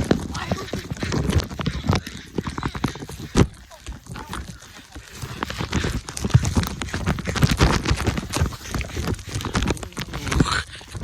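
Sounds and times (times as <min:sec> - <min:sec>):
running footsteps: 0:00.0 - 0:11.0.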